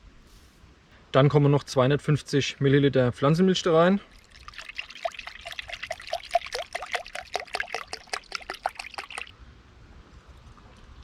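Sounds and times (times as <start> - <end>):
liquid glugging into a bowl: 4.1 - 9.3.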